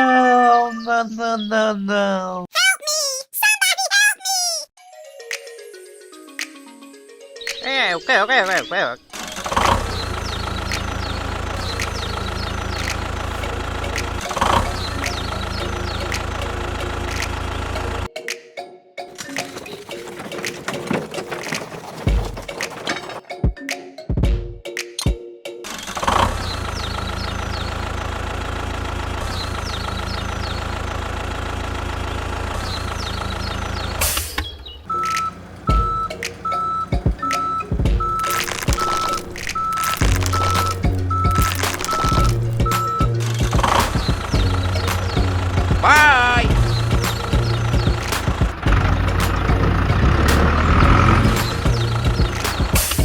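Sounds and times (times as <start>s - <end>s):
small bulldozer engine idling: 9.5s - 18.1s, 26.6s - 34.1s, 34.9s - 38.2s, 40.3s - 53.0s
evenly spaced beeps: 34.9s - 43.2s.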